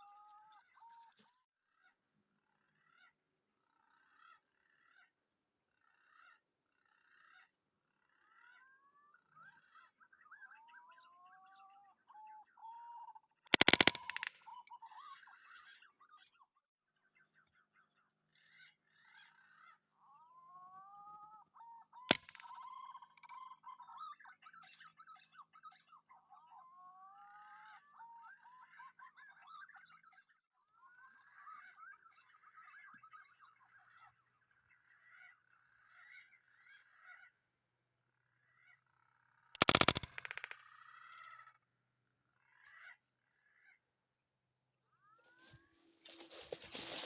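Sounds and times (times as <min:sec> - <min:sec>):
forest birds calling: 0:08.3 - 0:26.6, 0:38.4 - 0:41.5, 0:44.9 - 0:47.0
air rifle shot: 0:13.5 - 0:14.3, 0:39.6 - 0:40.6.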